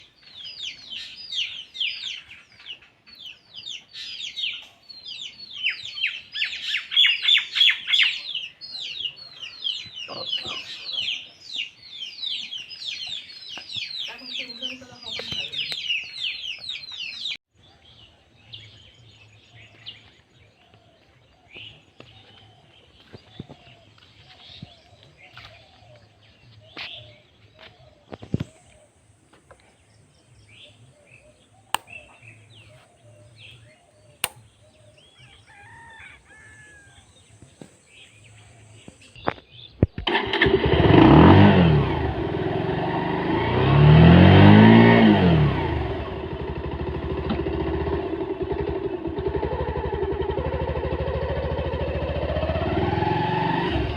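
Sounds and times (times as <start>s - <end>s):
birds chirping and calling: 0.0s - 53.9s
sharp clicks: 31.8s - 32.2s, 34.2s - 34.5s
motor vehicles passing: 40.3s - 53.9s.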